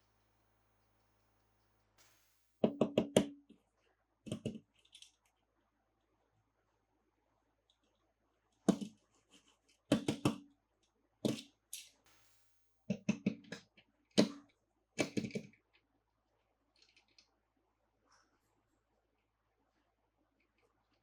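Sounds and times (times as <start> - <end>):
toy pieces clicking and knocking: 4.4 - 5.2.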